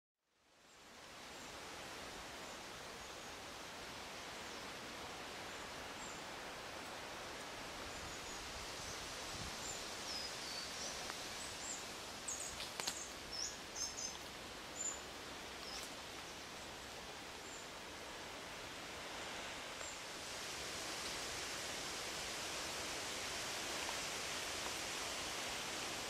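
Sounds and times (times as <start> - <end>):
steady background hiss: 0.3 - 26.0
small birds chirping: 7.9 - 17.8.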